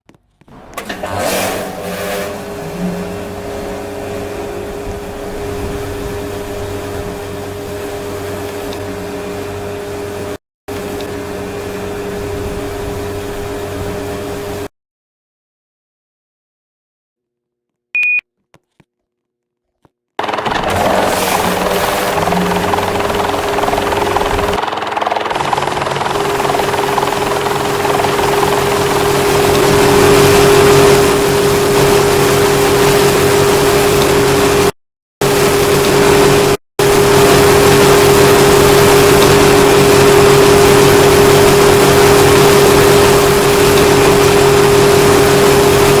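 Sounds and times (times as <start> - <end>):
air conditioner humming: 0.5 - 7.4
rushing noise: 0.6 - 7.6, 20.2 - 31.8.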